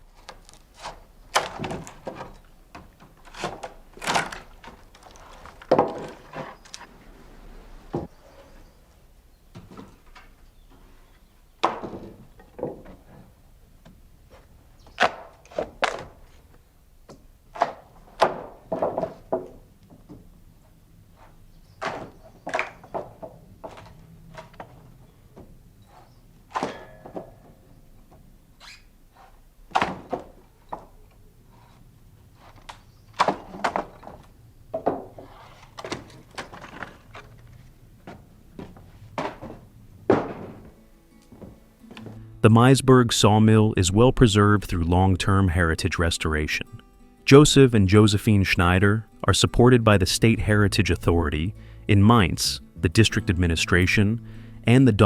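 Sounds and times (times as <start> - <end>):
heavy wooden thunks and knocks: 1.4 - 6.7, 11.6 - 14.0, 17.1 - 20.4, 21.8 - 25.6, 29.7 - 31.0, 33.2 - 37.3, 38.0 - 41.6
knocks and thuds: 38.0 - 40.8.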